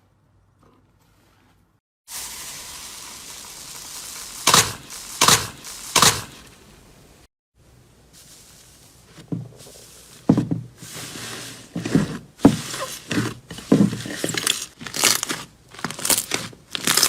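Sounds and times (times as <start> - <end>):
loud sharp crunches: 4.3 - 6.6, 14.0 - 17.0
slime crackling: 14.4 - 17.0.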